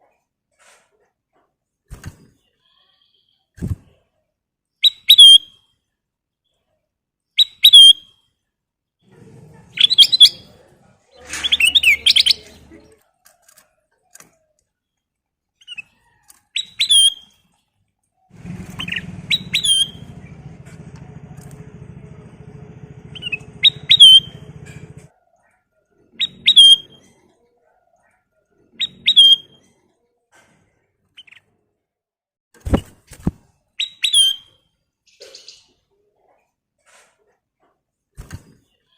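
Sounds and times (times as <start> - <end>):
bird chirping calls: 9.7 - 10.6, 11.2 - 12.9, 18.4 - 25.1, 26.1 - 27.0, 28.7 - 29.6
low steady hum: 18.4 - 25.1.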